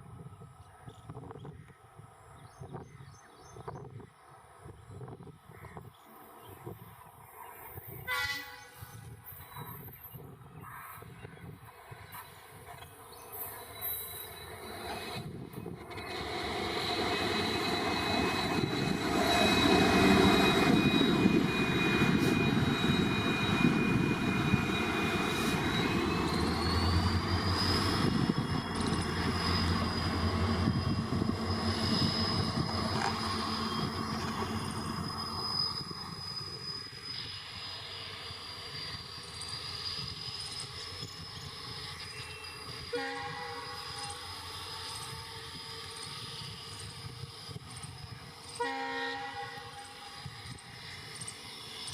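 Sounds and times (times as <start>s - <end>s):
train rumbling on rails: 2.2s - 51.9s
high steady whine: 15.2s - 48.6s.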